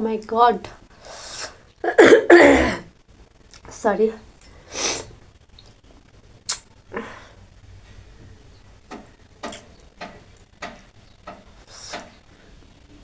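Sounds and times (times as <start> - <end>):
mouth noises of person eating: 6.4 - 7.2.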